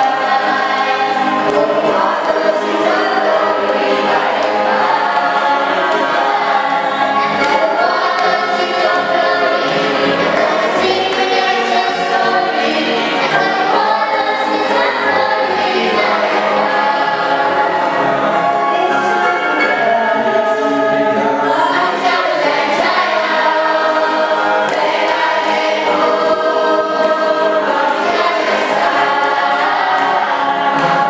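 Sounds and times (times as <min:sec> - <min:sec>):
choir singing: 0:00.0 - 0:31.0.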